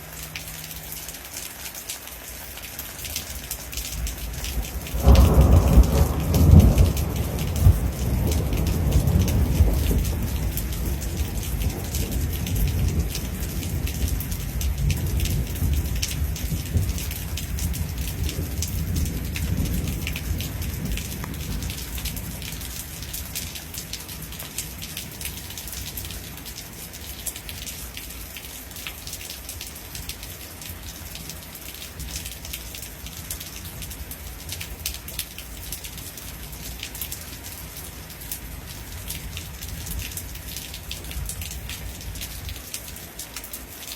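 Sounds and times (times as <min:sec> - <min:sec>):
heavy rain pattering: 0:00.0 - 0:43.9
rolling thunder: 0:04.6 - 0:22.6.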